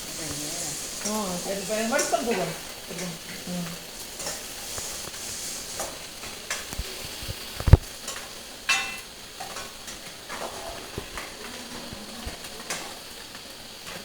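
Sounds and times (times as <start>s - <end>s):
food sizzling in hot oil: 0.0s - 14.0s
metal spoon scraping pan: 0.6s - 6.7s, 8.0s - 13.0s.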